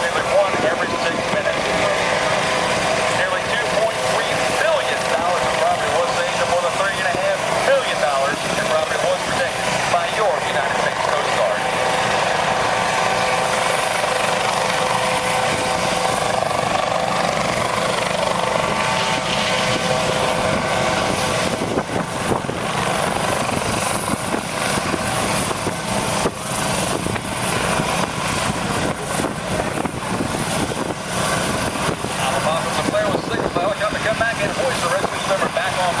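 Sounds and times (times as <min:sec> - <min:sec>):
aircraft engine droning: 0:00.0 - 0:36.0
uneven wind buffeting: 0:12.1 - 0:34.2.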